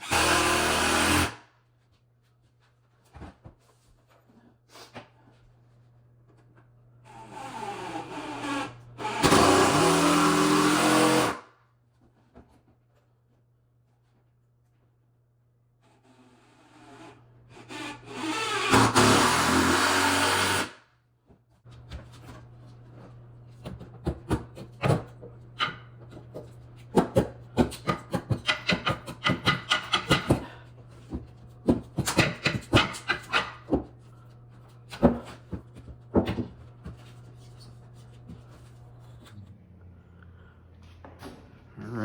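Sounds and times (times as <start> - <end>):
table saw cutting wood: 0.0 - 1.4, 7.1 - 11.4, 16.1 - 20.8.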